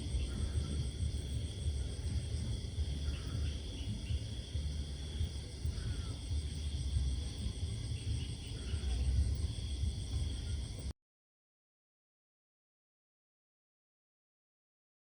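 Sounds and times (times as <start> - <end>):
constant low rumble: 0.0 - 10.9
crickets and night insects trilling: 0.0 - 10.9.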